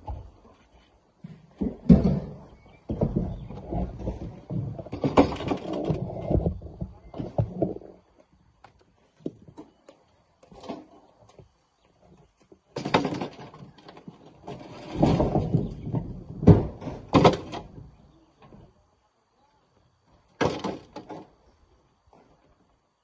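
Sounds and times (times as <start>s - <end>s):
rocks thudding into dump truck: 1.5s - 7.9s, 12.7s - 17.9s, 20.4s - 21.3s.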